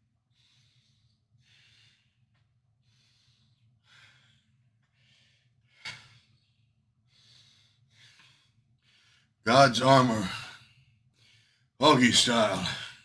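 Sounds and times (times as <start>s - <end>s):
man breathing heavily: 7.1s - 12.8s.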